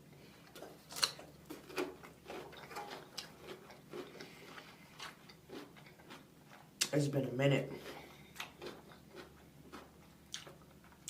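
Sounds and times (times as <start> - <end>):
faint chewing: 0.1 - 7.0, 7.7 - 11.0
small eating clicks and taps: 8.4 - 11.0.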